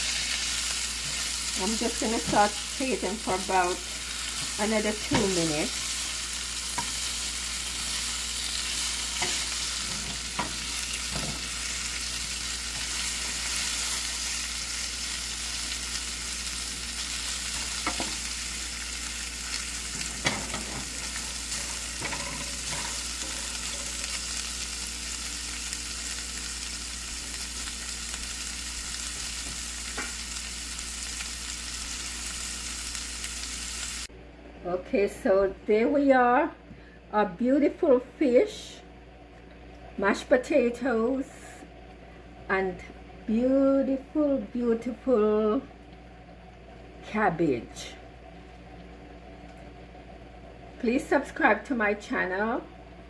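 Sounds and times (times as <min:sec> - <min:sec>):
vegetables sizzling in oil: 0:00.0 - 0:34.1.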